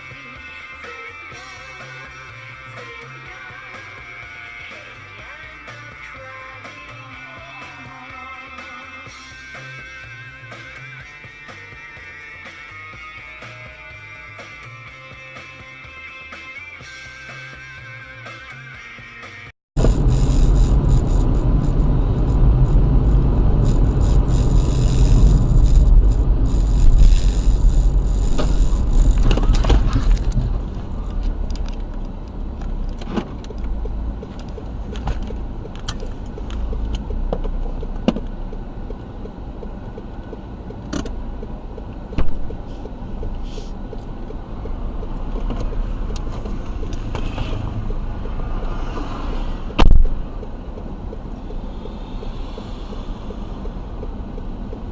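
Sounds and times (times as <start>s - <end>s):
road noise: 0.0s - 54.9s
car driving rumble: 19.8s - 54.9s
loud thump: 42.2s - 42.5s, 49.8s - 50.2s.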